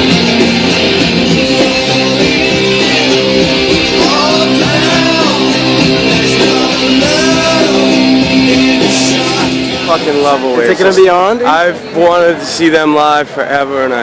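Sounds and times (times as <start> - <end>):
person singing: 0.0 - 10.4
rock music with strummed guitars: 0.0 - 10.6.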